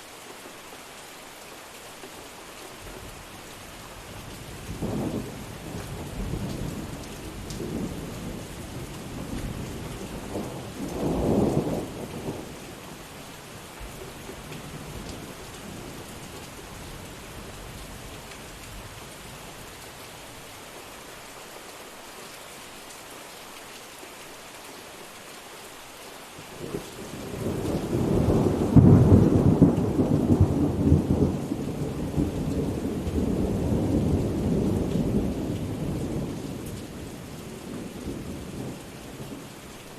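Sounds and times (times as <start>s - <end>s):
steady rain falling: 0.0s - 39.9s
thunder rumbling: 27.0s - 36.6s.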